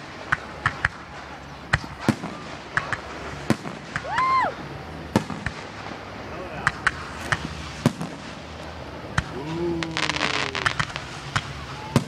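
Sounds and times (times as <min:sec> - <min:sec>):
fireworks bangs and cracks: 0:00.0 - 0:12.0
firework whistle: 0:00.8 - 0:05.8, 0:09.2 - 0:12.0.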